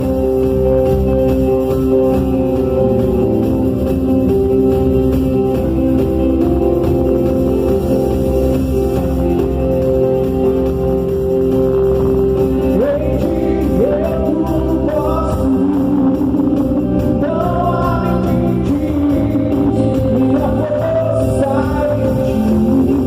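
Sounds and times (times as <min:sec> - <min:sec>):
instrumental accompaniment chords: 0:00.0 - 0:23.0
gospel voices singing: 0:12.7 - 0:23.0.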